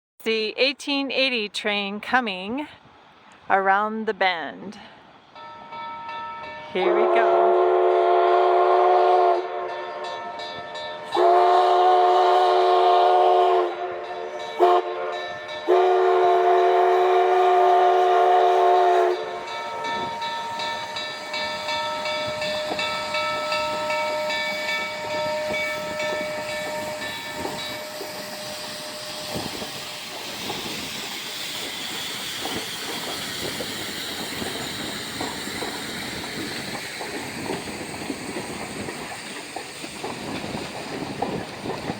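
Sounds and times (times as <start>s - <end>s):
steam locomotive chime whistle: 5.4s - 35.0s
train rolling past hissing steam: 6.4s - 41.9s.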